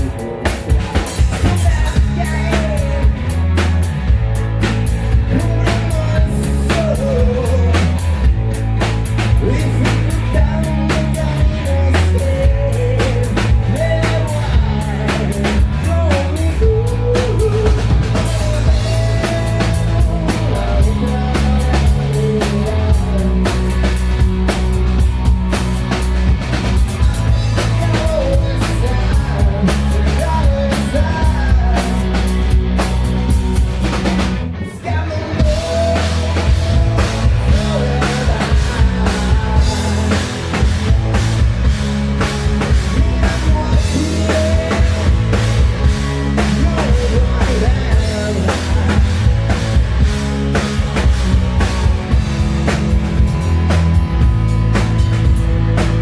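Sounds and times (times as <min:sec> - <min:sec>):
pounding drum kit: 0:00.0 - 0:34.5, 0:35.3 - 0:56.0
hard rock band playing: 0:00.0 - 0:56.0.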